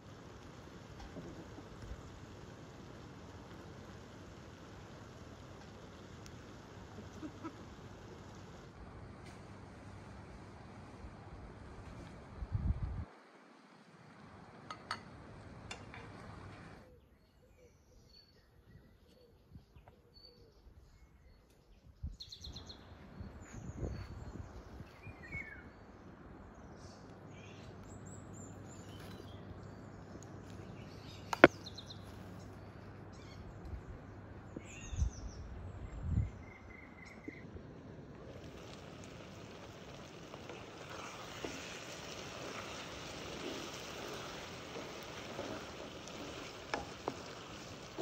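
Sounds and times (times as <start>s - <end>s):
birds chirping: 17.0s - 37.5s.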